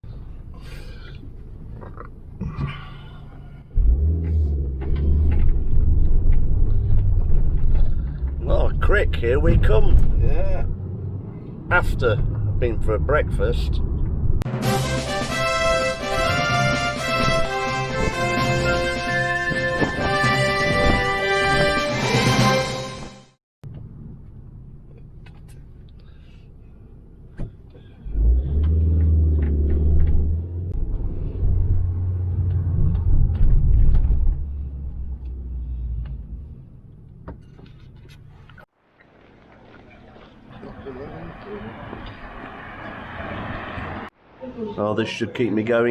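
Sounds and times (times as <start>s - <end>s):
car engine starting and running: 0.0s - 21.0s, 23.6s - 44.3s.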